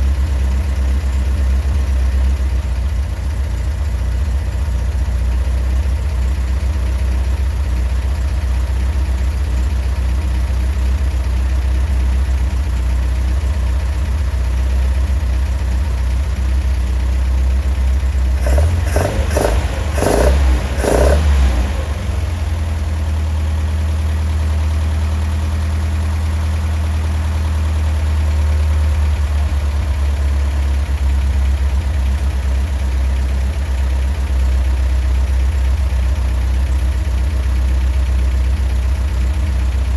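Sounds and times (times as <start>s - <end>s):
car engine idling: 0.0s - 39.9s
engine throttle blips: 17.6s - 26.5s.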